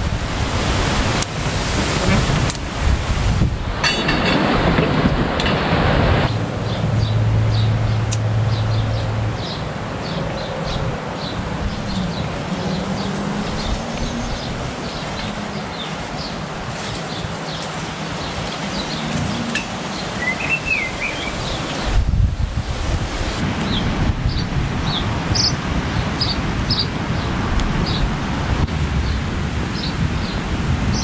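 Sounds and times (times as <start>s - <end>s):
garden birds chirping: 3.7s - 28.2s
bird warbling call: 18.7s - 21.9s.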